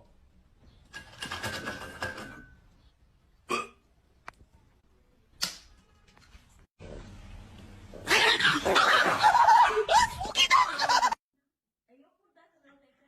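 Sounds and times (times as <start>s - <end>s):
person hiccuping: 3.5s - 3.8s.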